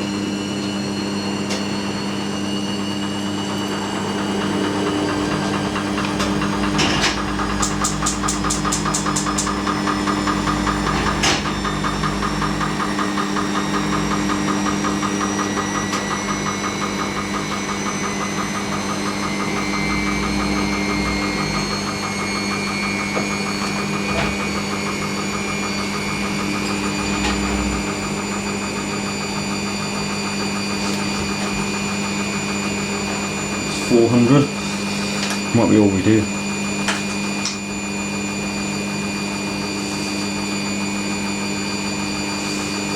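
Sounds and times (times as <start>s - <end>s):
washing machine motor whine rising: 0.0s - 42.9s
rattling vibration: 3.2s - 33.9s.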